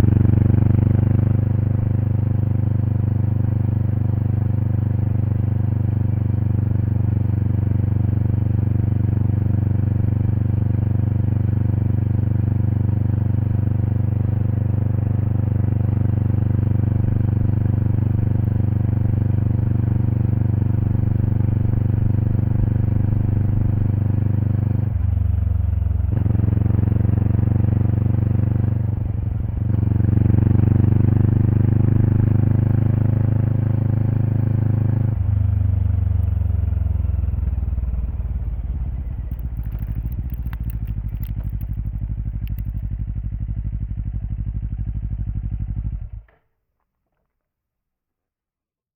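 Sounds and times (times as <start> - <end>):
motorcycle engine exhaust: 35.2 - 46.3.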